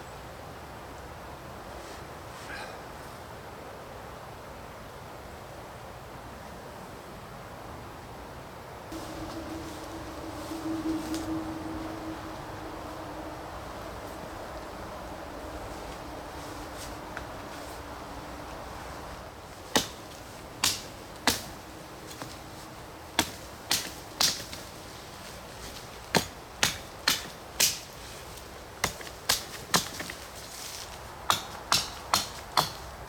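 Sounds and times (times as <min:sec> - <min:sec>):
steady low hiss: 0:06.9 - 0:33.0.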